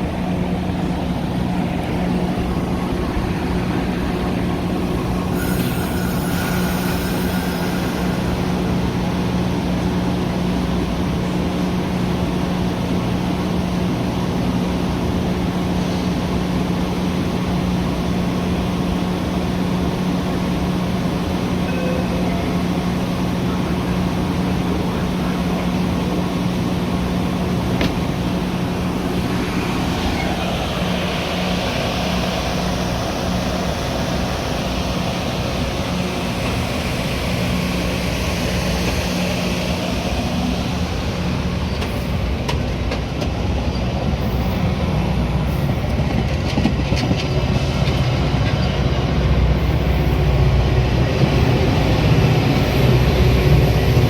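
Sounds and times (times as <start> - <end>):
train rumbling and humming: 0.0 - 54.0.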